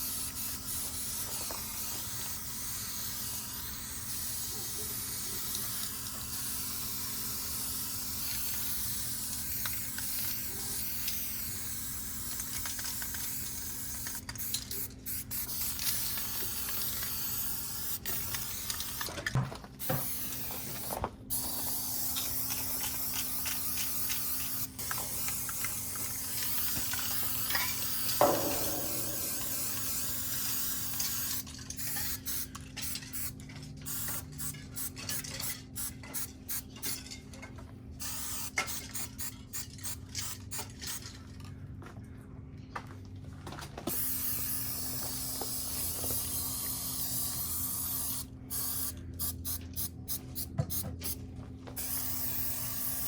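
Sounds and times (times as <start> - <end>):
spray paint can hissing: 0.0 - 19.2, 19.8 - 37.0, 38.0 - 41.0, 43.9 - 51.2, 51.8 - 53.0.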